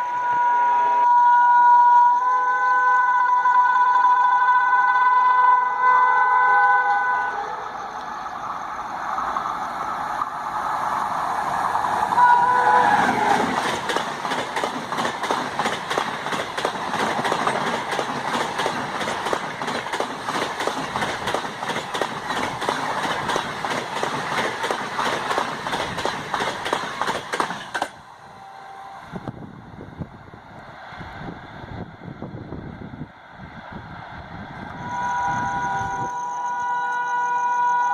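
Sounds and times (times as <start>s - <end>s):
locomotive horn blast: 0.0s - 7.6s, 12.1s - 13.6s, 28.2s - 29.4s, 34.8s - 37.9s
train wheels clattering over joints: 13.1s - 28.0s.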